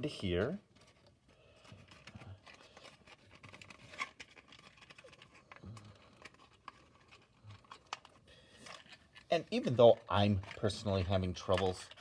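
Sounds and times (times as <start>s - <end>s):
cardboard pieces tapping and scraping: 1.6s - 12.0s.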